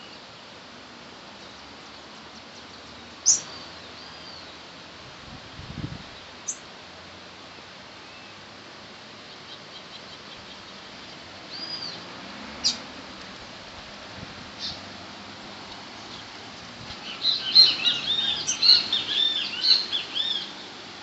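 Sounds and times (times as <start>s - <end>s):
birds chirping: 1.4s - 4.7s, 6.1s - 6.6s, 9.2s - 12.9s, 14.5s - 21.0s
rain falling: 10.8s - 21.0s
bird whistled call: 11.5s - 12.0s, 17.1s - 20.5s.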